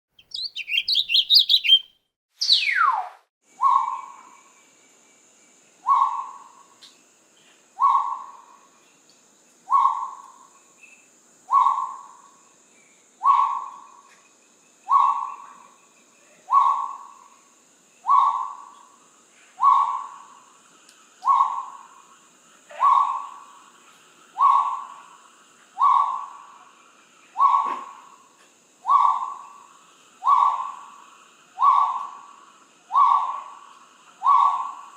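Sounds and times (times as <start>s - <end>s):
rapid high bird chirping: 0.1s - 2.8s
falling bird whistle: 0.2s - 3.1s.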